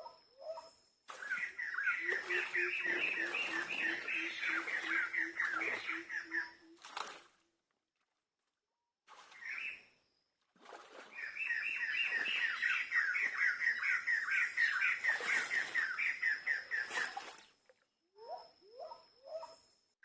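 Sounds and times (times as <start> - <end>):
faint steady high tone: 0.0 - 6.8, 11.5 - 20.0.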